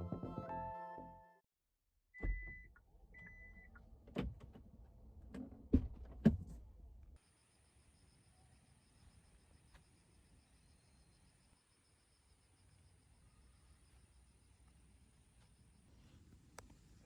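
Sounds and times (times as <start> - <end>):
clicks and knocks inside a car: 4.0 - 6.7.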